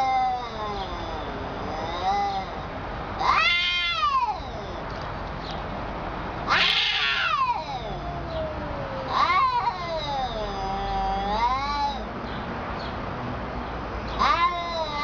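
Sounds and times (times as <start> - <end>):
cat meowing: 3.2 - 4.9, 6.5 - 12.0, 14.2 - 15.0.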